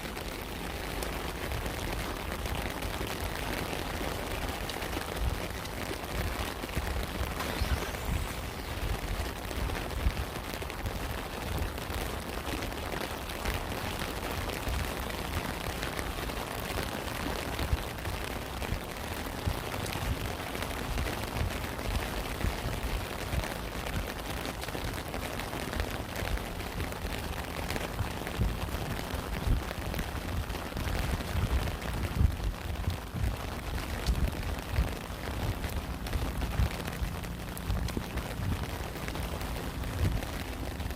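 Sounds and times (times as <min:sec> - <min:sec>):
rain drops hitting close by: 0:00.0 - 0:40.9
rain hiss: 0:00.0 - 0:40.9
deep low rumble: 0:06.2 - 0:11.8, 0:26.4 - 0:40.9.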